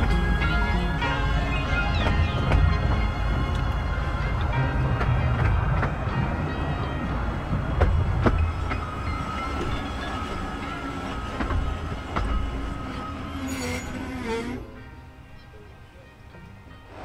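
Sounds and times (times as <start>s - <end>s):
wheels clicking over rail joints: 0.0s - 17.0s
steady wheel squeal: 7.8s - 14.7s.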